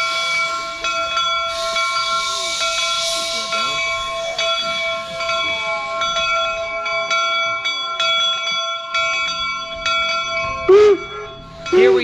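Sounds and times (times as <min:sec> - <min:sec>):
locomotive bell ringing: 0:00.0 - 0:12.0
faint voices: 0:01.6 - 0:08.6.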